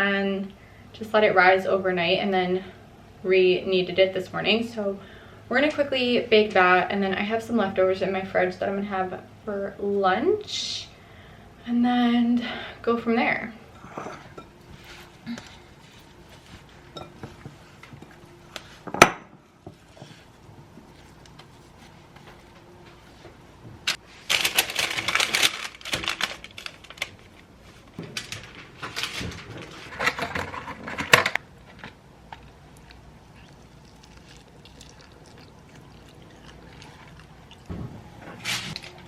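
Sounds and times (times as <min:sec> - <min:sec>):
dishes and utensils clinking: 0:16.9 - 0:17.6.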